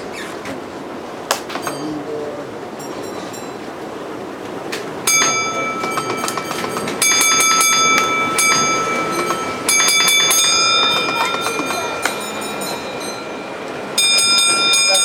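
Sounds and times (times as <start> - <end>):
model train wheels clicking: 5.1 - 13.2
high ringing squeal: 5.1 - 15.0.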